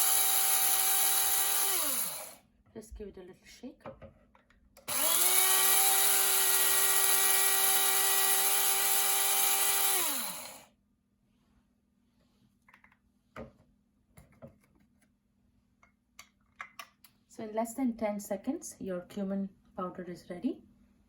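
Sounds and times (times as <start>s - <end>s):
spice grinder motor whining: 0.0s - 2.4s, 4.8s - 10.7s.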